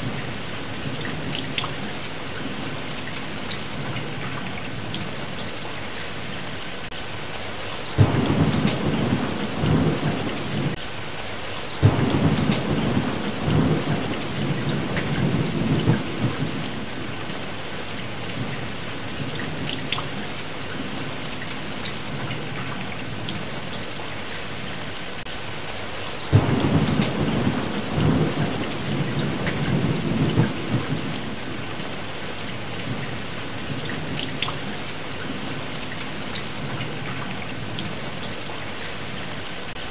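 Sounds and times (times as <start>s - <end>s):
heavy rain: 0.0s - 39.9s
thunder rumbling: 8.0s - 10.8s, 11.8s - 17.3s, 26.3s - 31.7s.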